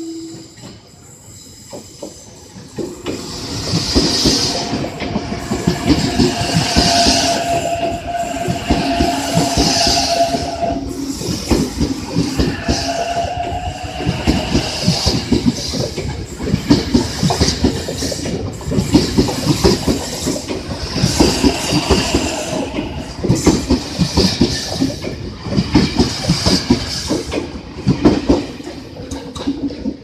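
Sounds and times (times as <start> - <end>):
train wheels clattering over rail joints: 13.6 - 30.0.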